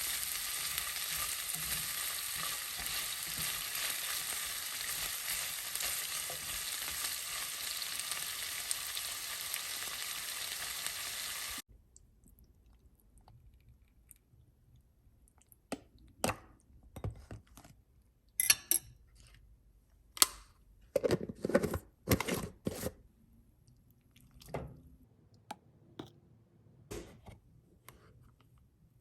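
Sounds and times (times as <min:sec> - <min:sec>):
utensils and dishes clinking: 0:18.4 - 0:19.0.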